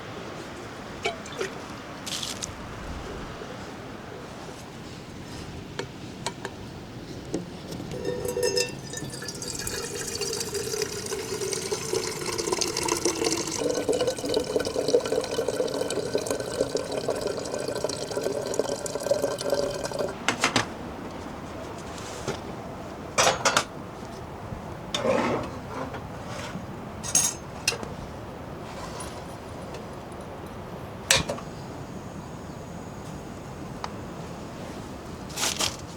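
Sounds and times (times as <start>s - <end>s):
water pouring into container: 7.9s - 20.2s.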